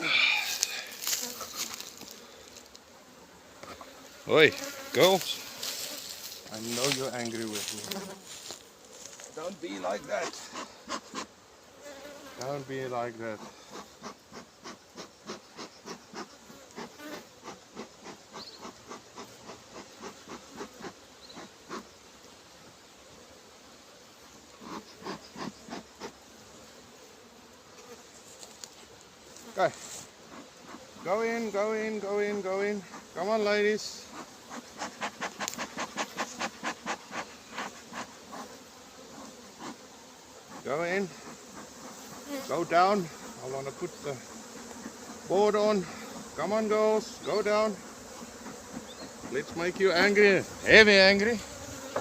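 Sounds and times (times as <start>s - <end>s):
honeybees buzzing: 0.0s - 52.0s.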